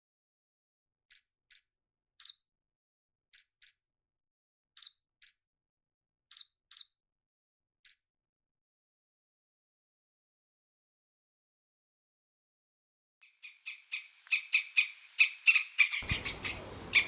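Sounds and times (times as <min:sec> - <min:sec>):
small animal squeaking: 0:01.1 - 0:02.4, 0:03.3 - 0:03.8, 0:04.8 - 0:05.4, 0:06.3 - 0:06.9, 0:15.5 - 0:17.0.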